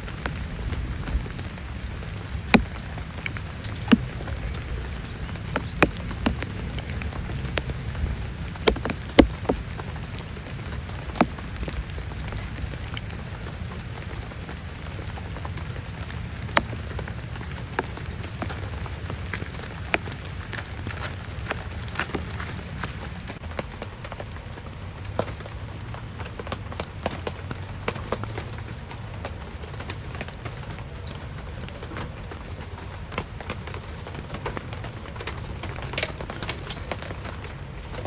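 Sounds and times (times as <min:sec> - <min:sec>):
heavy rain falling: 0:00.0 - 0:38.0
big drops tapping a surface: 0:02.5 - 0:10.2.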